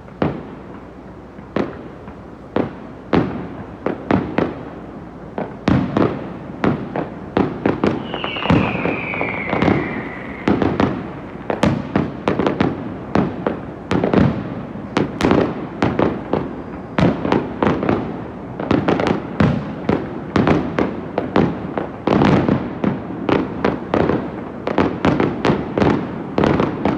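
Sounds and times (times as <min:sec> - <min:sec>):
firework whistle falling in pitch: 0:07.8 - 0:12.0
firework shells bursting: 0:07.8 - 0:12.7.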